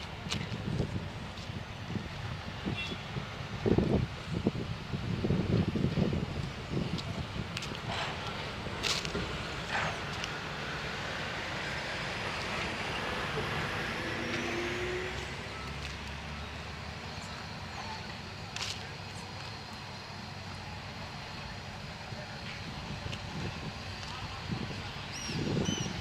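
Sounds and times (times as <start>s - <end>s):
motor vehicle passing by: 7.8s - 18.0s.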